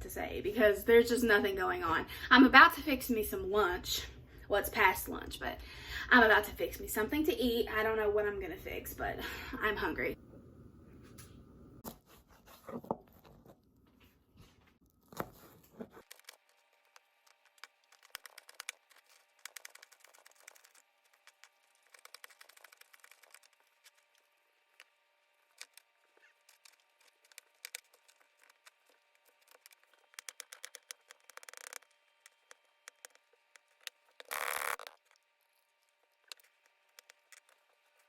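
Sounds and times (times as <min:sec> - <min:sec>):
food packaging crinkling and tearing: 0:14.9 - 0:38.0
small clicks: 0:16.0 - 0:24.2, 0:25.5 - 0:38.0.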